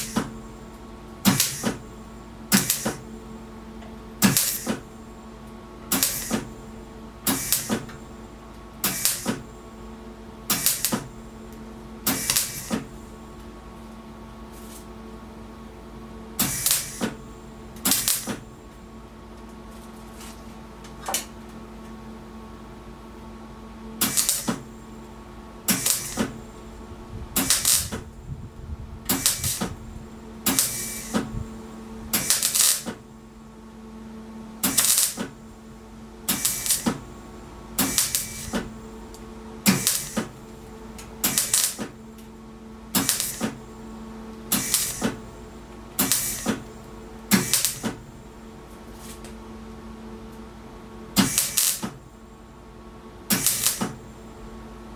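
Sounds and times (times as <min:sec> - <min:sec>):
electrical hum: 0:00.0 - 0:54.9
welding arc crackling: 0:01.3 - 0:01.8, 0:02.5 - 0:03.0, 0:04.2 - 0:04.8, 0:05.9 - 0:06.5, 0:07.3 - 0:07.9, 0:08.8 - 0:09.5, 0:10.5 - 0:11.2, 0:12.1 - 0:13.0, 0:16.4 - 0:17.2, 0:17.8 - 0:18.4, 0:24.0 - 0:24.7, 0:25.6 - 0:26.5, 0:27.4 - 0:28.2, 0:29.1 - 0:31.2, 0:32.2 - 0:33.0, 0:34.6 - 0:35.4, 0:36.3 - 0:37.1, 0:37.8 - 0:42.0, 0:42.9 - 0:43.7, 0:44.5 - 0:45.3, 0:46.0 - 0:48.1, 0:51.2 - 0:52.0, 0:53.3 - 0:54.0.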